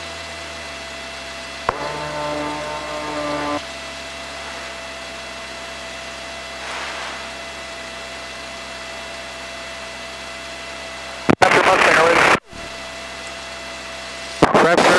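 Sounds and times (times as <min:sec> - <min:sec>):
radio hiss: 0:11.2 - 0:12.7.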